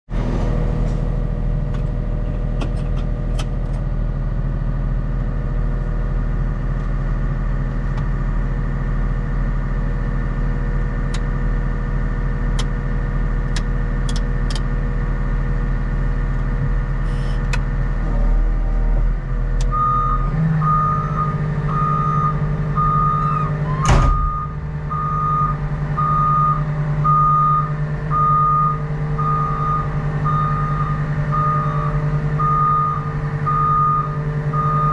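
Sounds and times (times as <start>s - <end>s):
wheel loader diesel engine running: 0.1s - 34.9s
reversing alarm beeping: 19.7s - 34.9s.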